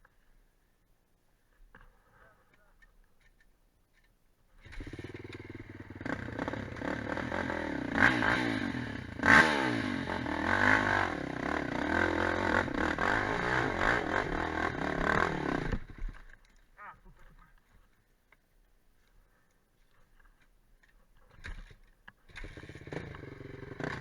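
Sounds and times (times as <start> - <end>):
quad bike engine revving: 4.6 - 16.0, 22.3 - 24.0.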